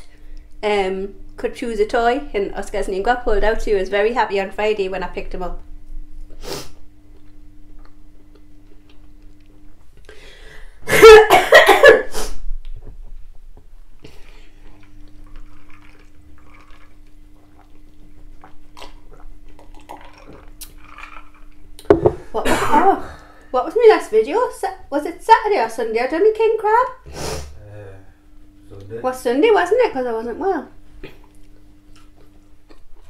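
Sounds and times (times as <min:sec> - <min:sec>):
gulping a drink: 0:14.5 - 0:21.9
chewing chips: 0:14.6 - 0:21.6, 0:31.0 - 0:33.0.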